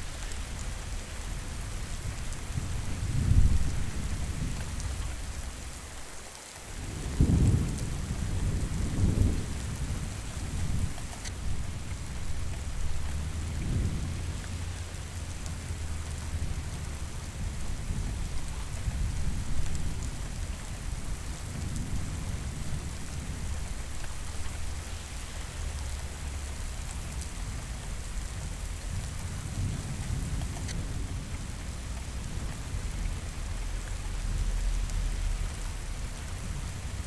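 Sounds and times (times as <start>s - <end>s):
steady rain falling: 0.0s - 37.0s
low rolling thunder: 1.3s - 5.8s, 6.8s - 37.0s.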